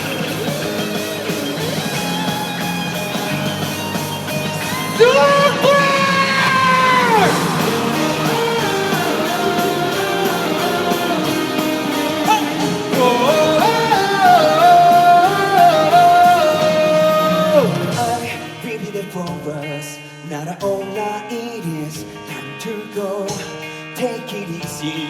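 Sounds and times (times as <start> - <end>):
live pop-rock band with guitars: 0.0 - 25.0
person singing long notes: 5.0 - 19.1.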